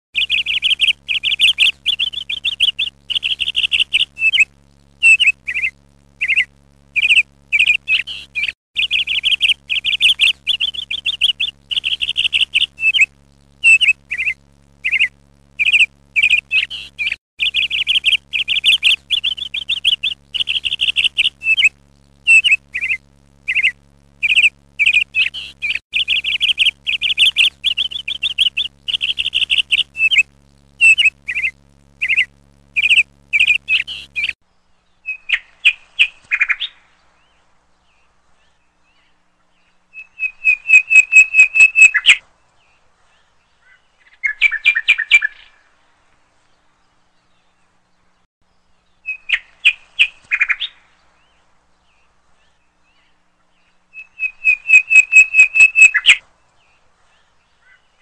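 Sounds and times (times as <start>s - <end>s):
bird chirping in trilled bursts: 0.2s - 34.4s, 54.2s - 56.2s
faint steady low hum: 0.2s - 58.0s.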